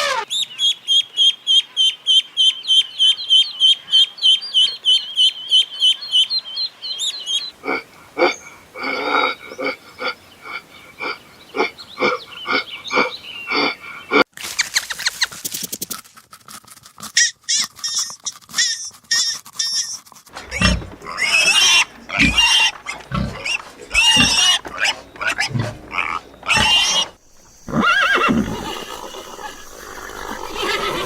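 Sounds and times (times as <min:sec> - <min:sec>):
farm animals calling: 0:07.0 - 0:14.2, 0:17.5 - 0:31.0.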